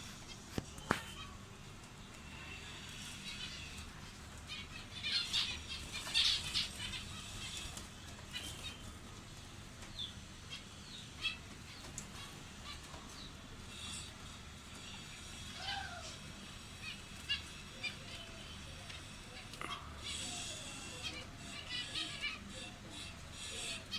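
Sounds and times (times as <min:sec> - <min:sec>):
cage birds chirping: 0:00.0 - 0:23.9.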